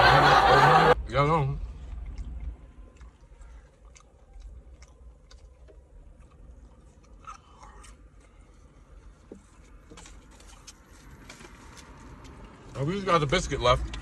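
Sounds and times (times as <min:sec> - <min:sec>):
low steady hum: 0:00.0 - 0:11.7
man chewing: 0:01.7 - 0:12.5.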